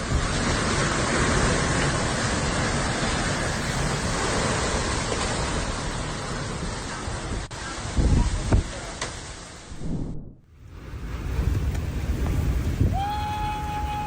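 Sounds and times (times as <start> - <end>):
wind blowing across microphone: 0.0 - 14.0.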